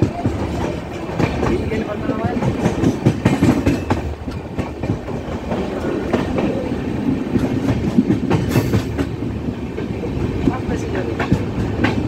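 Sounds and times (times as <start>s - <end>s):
wheel clacks over rail joints: 0.0s - 6.6s
train coach rumbling: 0.0s - 12.0s.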